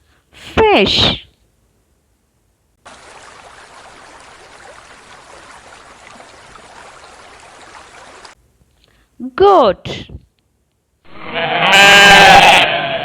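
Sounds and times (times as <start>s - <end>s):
aquarium water trickling: 2.8s - 8.4s.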